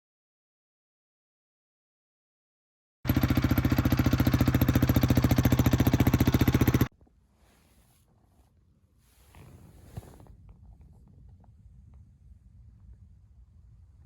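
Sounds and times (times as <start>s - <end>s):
motorcycle engine running: 3.1s - 6.9s.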